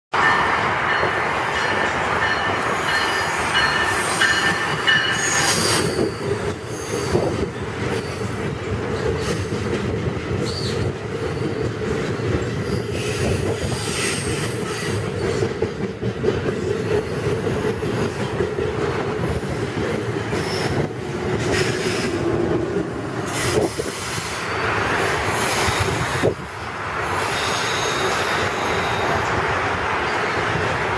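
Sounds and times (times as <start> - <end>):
train wheels rumbling on rail: 0.2 - 30.9
high-pitched metallic squeal: 2.7 - 7.3, 27.2 - 29.1.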